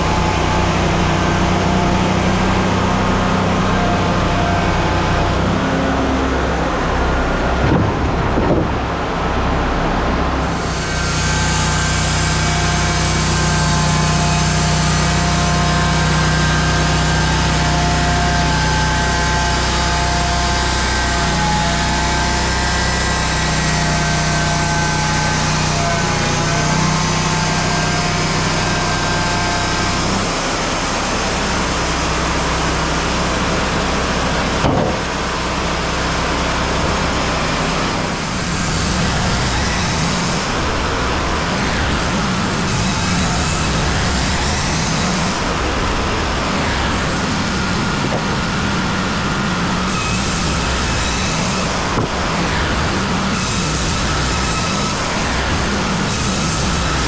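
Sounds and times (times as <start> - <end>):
engine running with low hum: 0.0 - 57.0
high steady whine: 27.1 - 57.0.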